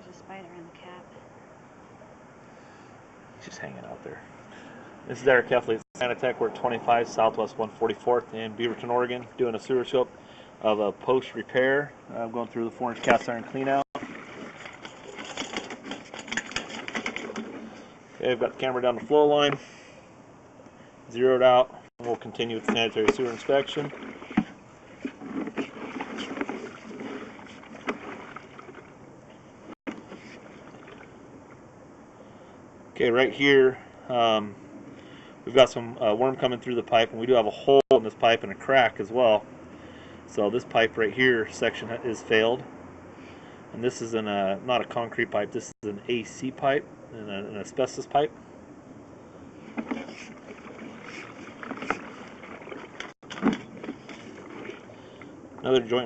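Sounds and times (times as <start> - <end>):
cable scraping in pipe: 23.1 - 28.5, 49.6 - 55.0.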